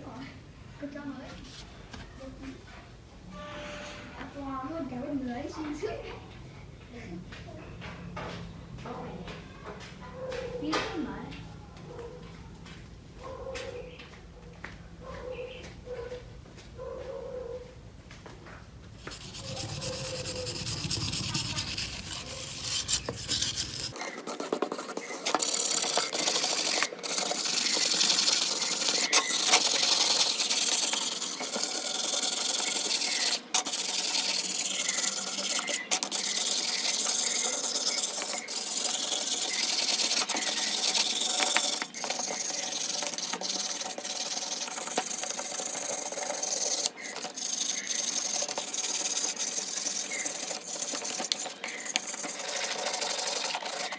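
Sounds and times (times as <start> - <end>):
abrasive rasping of sanding: 19.0 - 53.9.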